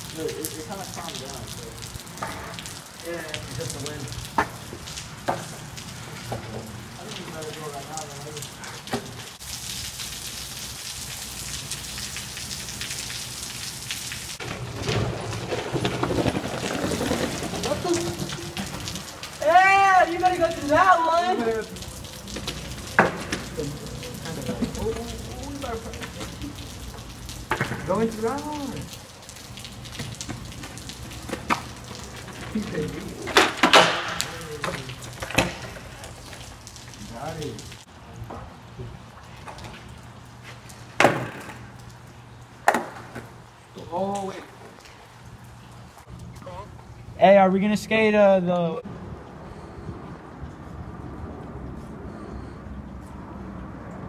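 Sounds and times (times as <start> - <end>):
raindrops striking close by: 0.0 - 47.9
steady rain: 0.0 - 54.0
skateboard clacking on concrete: 14.4 - 18.9, 22.4 - 23.6, 27.5 - 27.9, 30.0 - 32.6, 33.2 - 36.4, 42.6 - 43.3.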